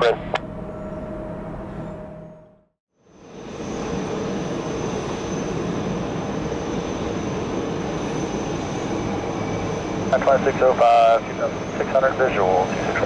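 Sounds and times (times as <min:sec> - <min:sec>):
jet engines running: 0:00.0 - 0:02.3, 0:03.0 - 0:13.0
high-pitched engine whine: 0:00.0 - 0:13.0.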